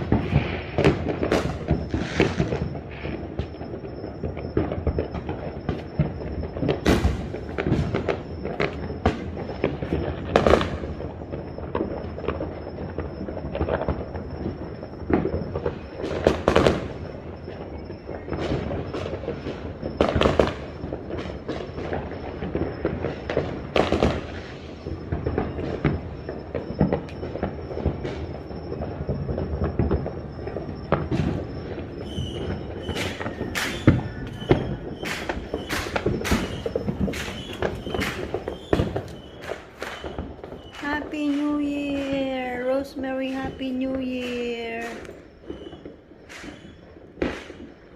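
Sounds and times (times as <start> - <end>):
fireworks crackling and banging: 0.0 - 47.9.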